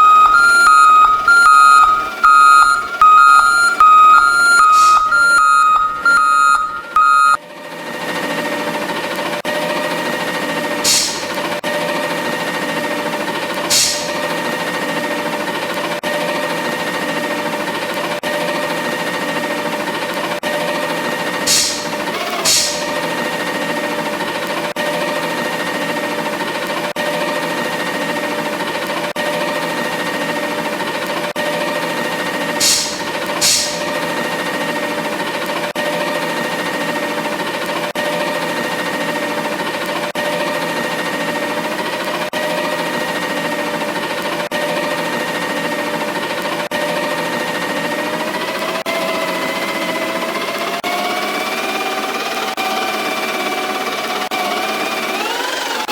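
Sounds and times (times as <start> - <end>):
truck backup alarm beeping: 0.0 - 7.4, 10.8 - 11.6, 13.7 - 14.4, 21.5 - 23.1, 32.6 - 34.2
truck mechanical hum: 0.0 - 7.4, 21.2 - 24.4
short sharp air hisses: 10.8 - 11.4, 13.7 - 14.3, 21.5 - 23.0, 32.6 - 34.0.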